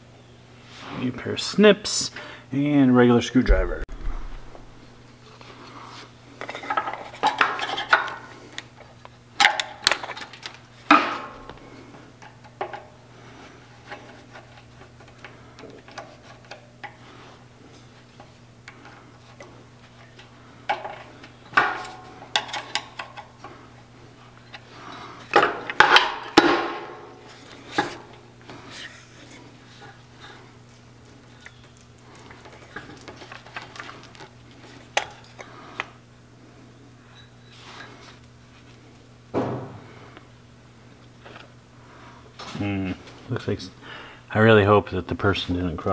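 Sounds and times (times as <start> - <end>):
faint low hum: 3.3 - 5.8.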